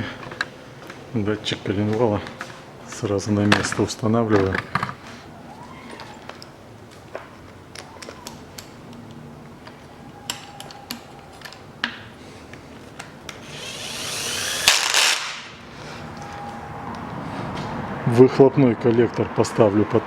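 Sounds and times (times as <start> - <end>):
power tool running: 13.4 - 15.5.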